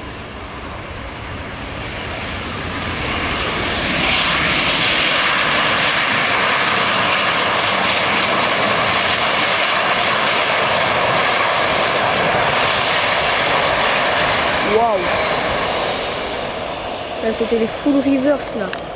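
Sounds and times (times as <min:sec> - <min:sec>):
jet engine roar: 0:00.0 - 0:18.9.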